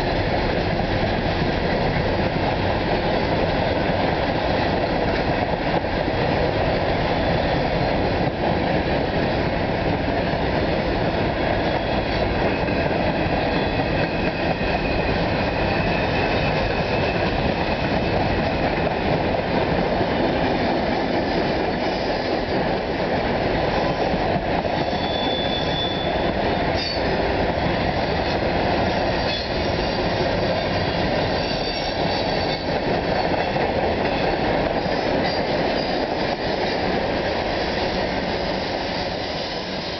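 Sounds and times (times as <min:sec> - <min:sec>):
freight train wheels rumbling: 0:00.0 - 0:39.9
wheel squeals: 0:24.9 - 0:27.1.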